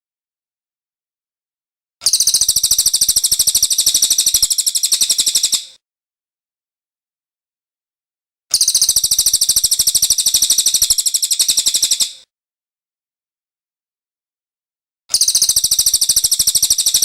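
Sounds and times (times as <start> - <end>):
songbird trill: 2.0 - 5.8, 8.5 - 12.2, 15.1 - 17.0.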